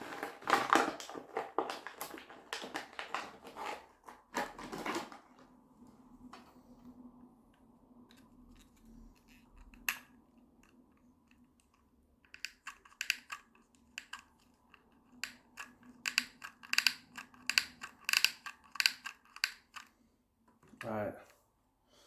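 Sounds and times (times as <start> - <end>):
clicks and snips of crafting: 8.1 - 19.9.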